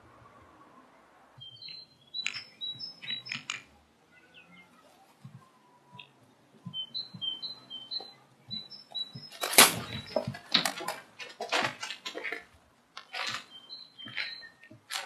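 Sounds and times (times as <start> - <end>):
bird chirping: 1.4 - 11.4, 13.0 - 15.0.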